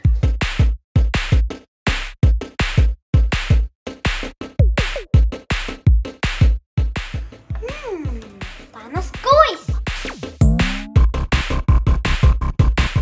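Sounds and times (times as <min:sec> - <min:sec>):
electronic music with drum-machine beat: 0:09.8 - 0:11.2.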